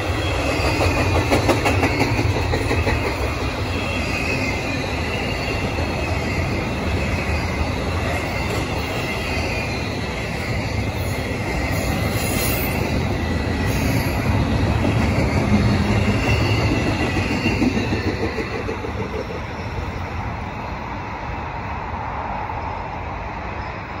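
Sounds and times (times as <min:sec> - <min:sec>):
freight train wheels rumbling: 0:00.0 - 0:24.0
high wheel squeal: 0:03.3 - 0:14.4, 0:15.0 - 0:18.6.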